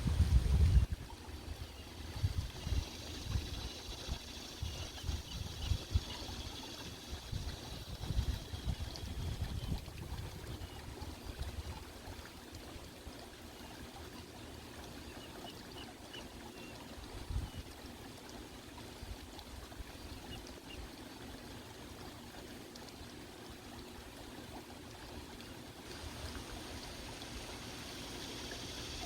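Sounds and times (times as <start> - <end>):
low rumbling gusts: 0.0 - 1.0
water trickling: 0.0 - 29.0.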